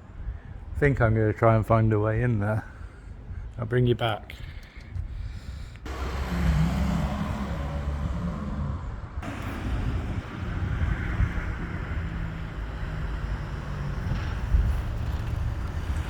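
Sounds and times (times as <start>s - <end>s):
wind rumbling on microphone: 0.0s - 16.0s
vehicle engine humming: 5.8s - 16.0s.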